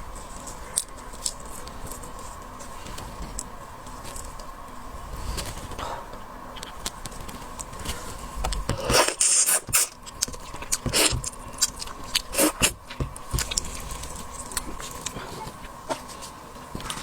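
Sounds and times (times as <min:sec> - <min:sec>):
wet sucking and chewing: 0:08.5 - 0:17.0.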